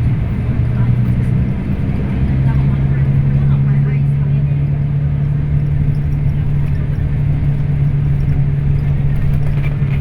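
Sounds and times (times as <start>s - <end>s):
bus engine droning: 0.0s - 10.0s
road rumble: 0.0s - 10.0s.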